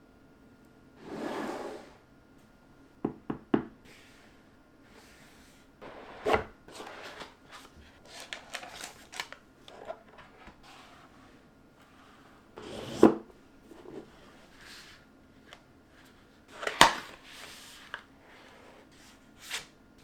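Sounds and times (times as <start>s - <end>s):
packaging rustling: 6.7s - 10.7s.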